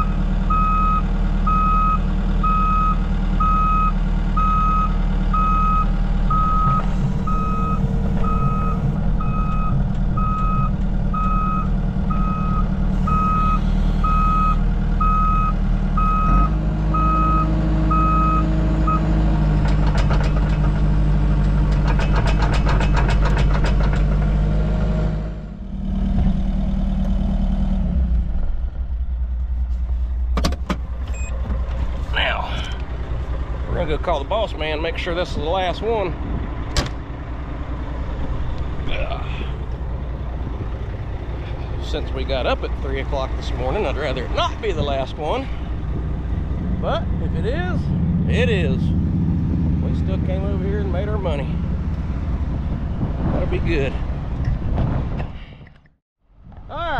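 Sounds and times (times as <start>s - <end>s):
backup alarm beeping: 0.0s - 19.0s, 31.1s - 31.4s
diesel engine running: 0.0s - 56.9s.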